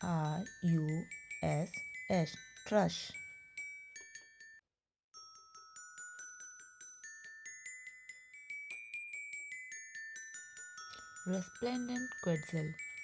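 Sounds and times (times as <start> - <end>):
bell-like struck notes music: 5.2 - 13.0.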